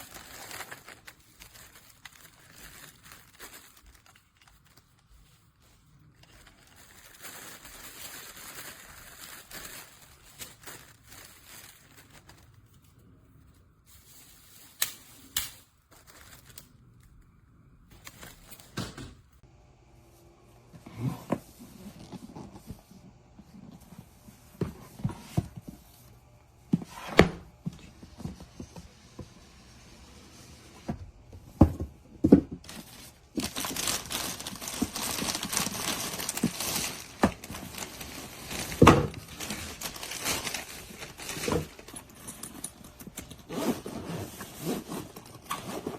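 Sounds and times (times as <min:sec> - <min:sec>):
plastic crinkling and tearing: 0:00.0 - 0:13.2, 0:13.9 - 0:17.2, 0:32.6 - 0:45.9.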